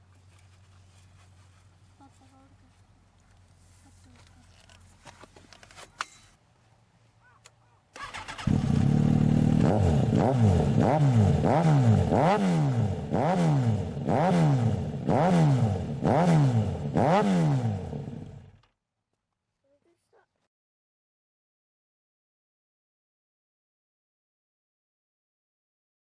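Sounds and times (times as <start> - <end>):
motorcycle engine revving: 8.0 - 18.7.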